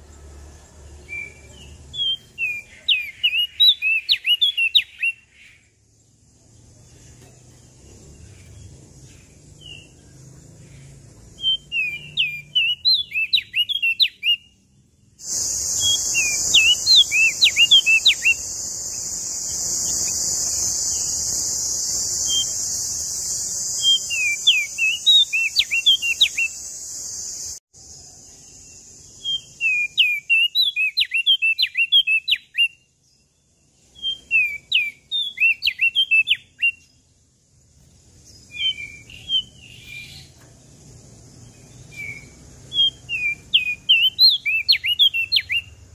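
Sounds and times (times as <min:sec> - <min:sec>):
songbird chirping: 0:00.0 - 0:45.9
steady hiss: 0:15.2 - 0:29.2.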